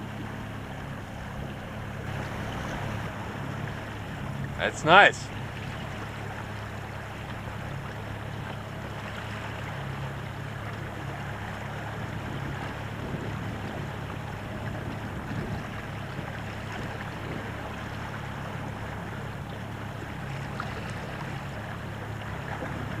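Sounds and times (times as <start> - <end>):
water noise: 0.0 - 23.0
wind noise: 12.0 - 17.6.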